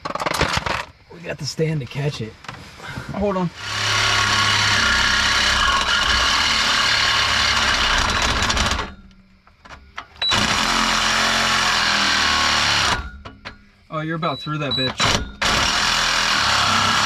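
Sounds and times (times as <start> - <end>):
saw cutting metal pipe: 3.6 - 9.0, 10.2 - 13.3, 15.0 - 17.0.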